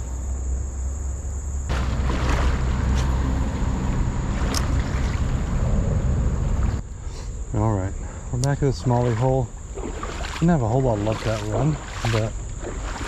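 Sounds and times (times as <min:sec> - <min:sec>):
high insect buzz: 0:00.0 - 0:13.0
wind rumbling on microphone: 0:00.0 - 0:13.0
rough rushing noise: 0:01.7 - 0:10.6.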